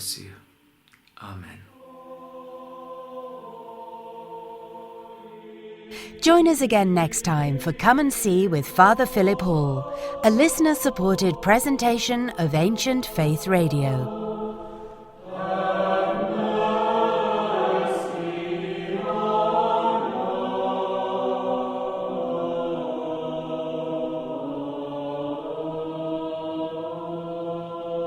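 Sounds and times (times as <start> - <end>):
choir chanting: 1.7 - 28.0.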